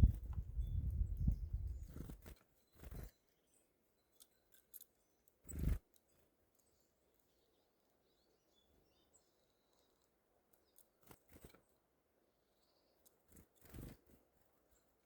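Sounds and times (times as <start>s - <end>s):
faint small bird calls: 0.0s - 11.8s.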